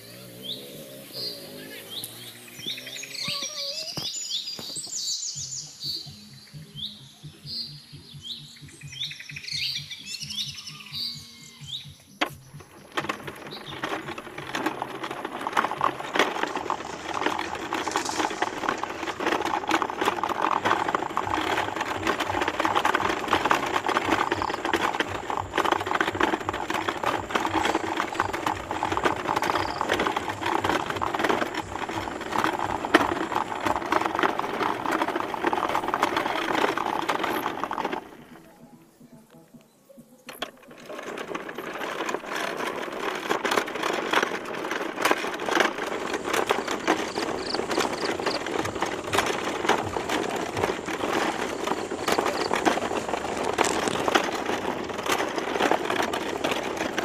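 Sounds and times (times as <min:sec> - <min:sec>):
birds chirping: 0:00.0 - 0:40.6, 0:46.2 - 0:54.0.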